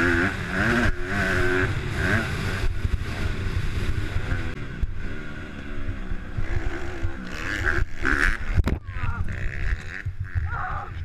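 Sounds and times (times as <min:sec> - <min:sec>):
motocross bike engine revving: 0:00.0 - 0:10.6
wind buffeting microphone: 0:05.9 - 0:11.0.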